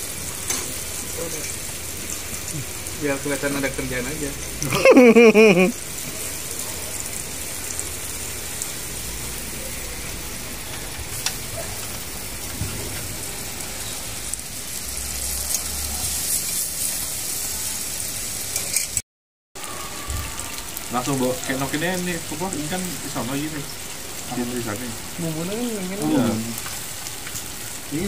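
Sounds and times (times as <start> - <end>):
onions sizzling on a griddle: 0.0 - 19.0, 19.6 - 28.0.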